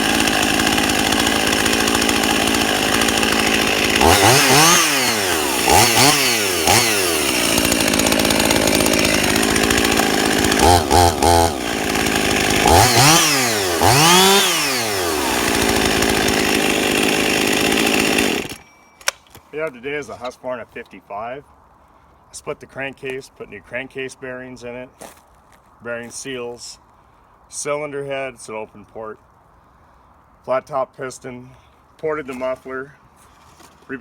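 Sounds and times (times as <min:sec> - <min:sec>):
chainsaw idling and revving: 0:00.0 - 0:18.7.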